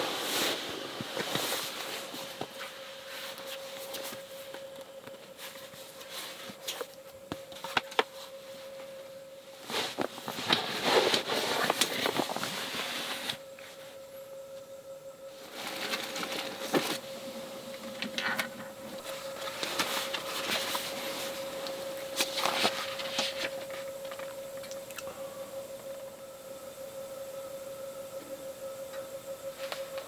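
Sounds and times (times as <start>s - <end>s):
rustling: 0.0s - 14.1s, 15.3s - 24.8s
faint steady hum: 0.0s - 30.0s.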